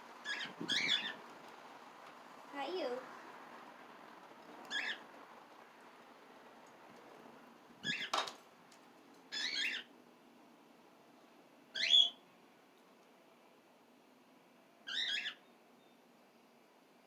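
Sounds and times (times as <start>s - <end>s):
parrots calling: 4.7s - 5.1s, 9.3s - 9.9s, 14.9s - 15.4s.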